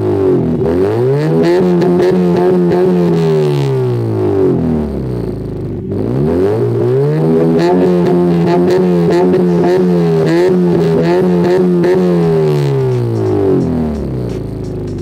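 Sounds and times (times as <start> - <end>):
car engine revving: 0.0 - 15.0
music with steady beat: 7.9 - 15.0.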